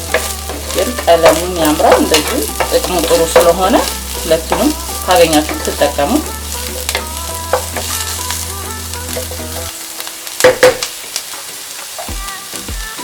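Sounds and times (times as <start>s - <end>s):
spoon clanking against pot: 0.0s - 6.0s, 10.4s - 10.9s
vegetables sizzling in a pot: 0.0s - 13.0s.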